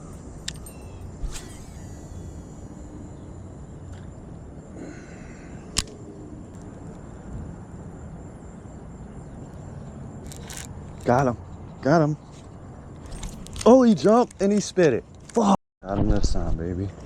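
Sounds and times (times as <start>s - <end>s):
sharp click: 0.4s - 2.5s, 5.7s - 6.7s.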